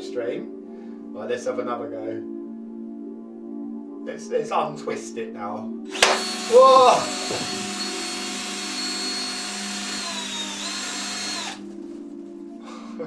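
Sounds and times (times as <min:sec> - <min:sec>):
power drill whining: 0:05.9 - 0:11.8.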